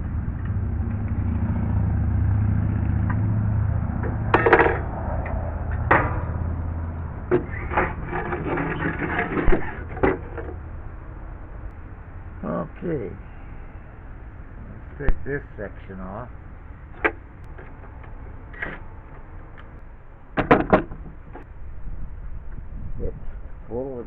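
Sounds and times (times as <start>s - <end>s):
low engine hum: 0.0s - 24.0s
sharp knocks: 4.0s - 6.6s, 20.4s - 21.4s
tools and wood clattering: 4.0s - 6.6s, 7.2s - 10.6s, 20.4s - 21.5s.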